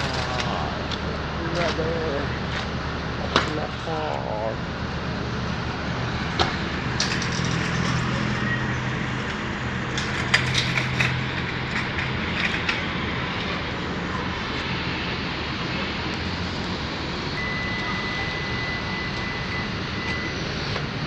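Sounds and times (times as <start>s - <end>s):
car engine hum: 0.0s - 21.0s
road and tyre noise: 0.0s - 21.0s.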